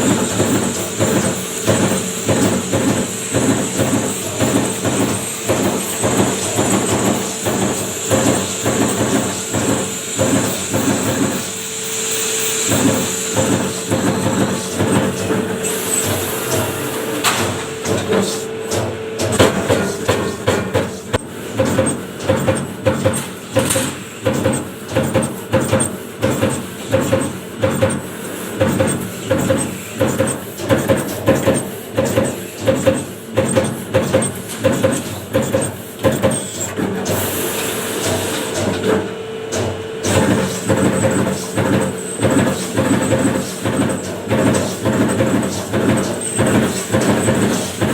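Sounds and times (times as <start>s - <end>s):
hiss: 0.0s - 18.5s, 28.0s - 38.8s, 39.5s - 47.9s.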